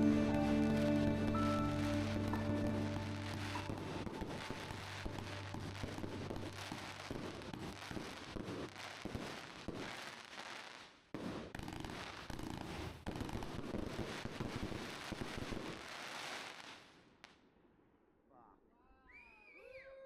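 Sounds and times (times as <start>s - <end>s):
dense crackling and popping: 0.0s - 10.9s.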